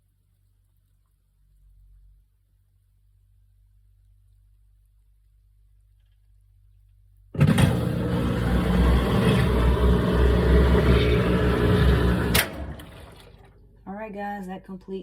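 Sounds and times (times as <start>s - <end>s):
washing machine rumbling: 7.4s - 13.8s.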